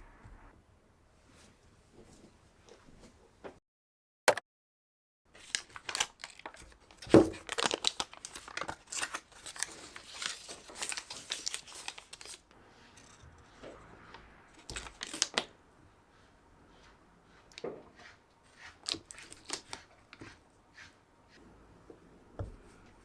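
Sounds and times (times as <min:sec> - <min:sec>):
crinkling and rustling: 0:05.3 - 0:15.6.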